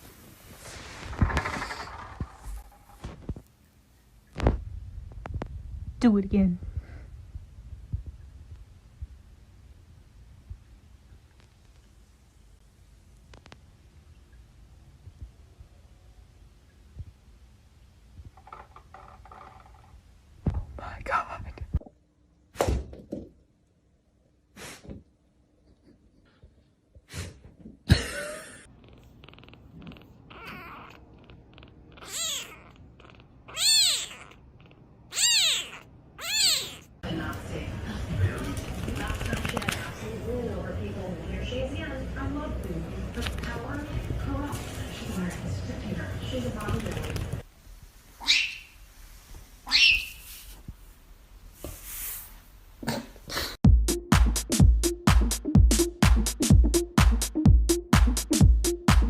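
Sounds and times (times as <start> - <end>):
cat meowing: 28.8 - 37.0.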